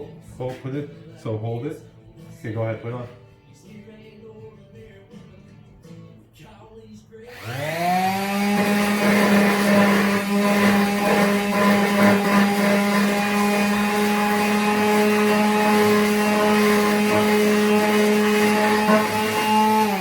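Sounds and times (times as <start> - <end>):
power sander motor hum: 7.3 - 20.0
sandpaper rasping on wood: 8.4 - 20.0.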